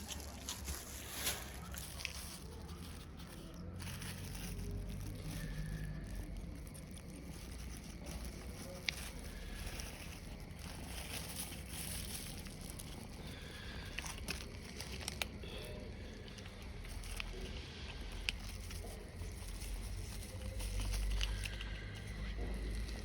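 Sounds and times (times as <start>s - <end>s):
cats chewing food: 0.0s - 23.0s
low background rumble: 0.0s - 23.0s.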